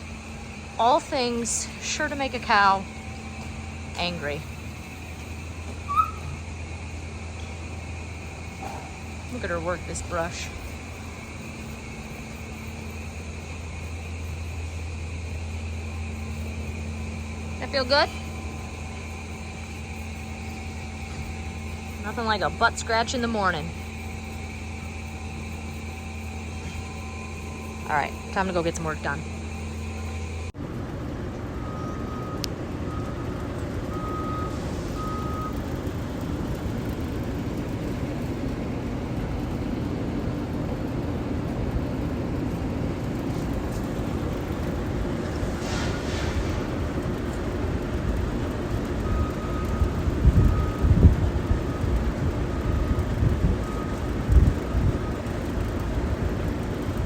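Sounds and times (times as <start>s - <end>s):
reversing alarm beeps: 0.0s - 30.5s, 31.6s - 35.7s, 48.4s - 56.5s
vehicle engine running: 0.0s - 57.0s.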